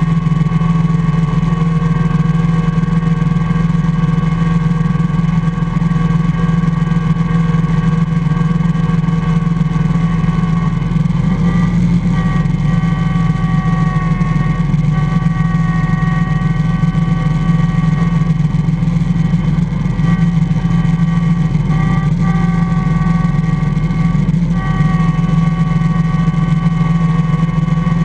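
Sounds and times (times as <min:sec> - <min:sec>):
engine whine: 0:00.0 - 0:28.0
garden tractor engine drone: 0:00.0 - 0:28.0.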